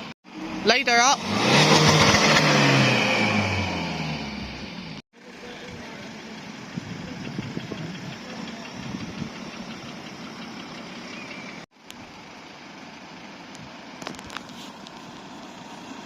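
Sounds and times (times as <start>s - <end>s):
car engine idling roughly: 5.2s - 16.0s.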